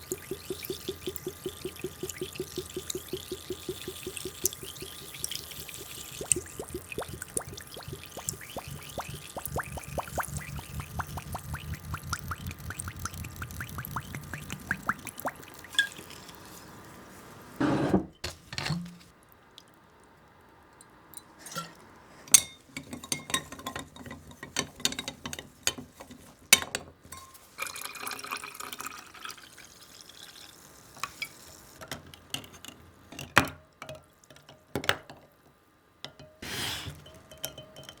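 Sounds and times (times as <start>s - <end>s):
liquid pouring: 0.0s - 17.0s, 27.6s - 30.9s.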